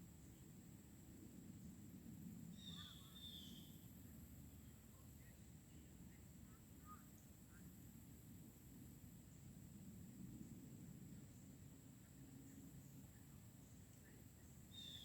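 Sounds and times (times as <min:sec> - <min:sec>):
faint bird chirps: 0:02.5 - 0:03.8, 0:12.8 - 0:15.0.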